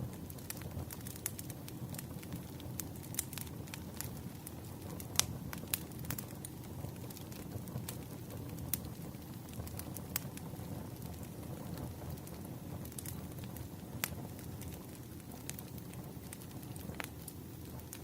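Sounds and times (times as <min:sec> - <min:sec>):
burning logs crackling and popping: 0:00.0 - 0:18.0
fire flames rushing: 0:00.1 - 0:18.0.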